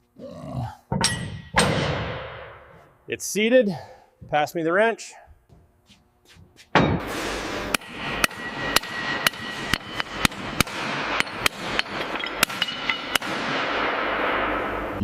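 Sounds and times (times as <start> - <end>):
hammer striking metal: 1.0 - 2.6, 7.7 - 14.5
steady workshop hiss: 2.7 - 15.0.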